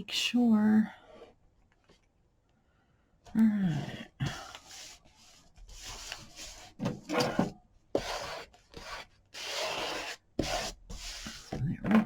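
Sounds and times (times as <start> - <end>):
paper rubbed and scraped by hand: 4.6 - 6.8, 7.9 - 11.5.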